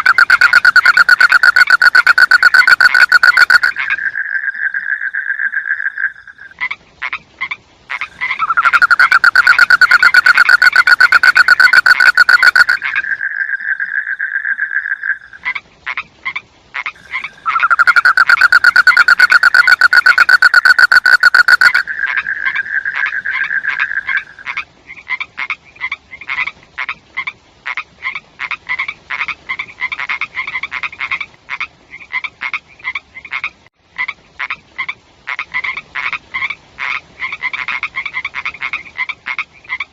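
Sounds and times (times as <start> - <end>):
frogs trilling: 0.0 - 6.6, 7.9 - 15.6, 16.8 - 24.6.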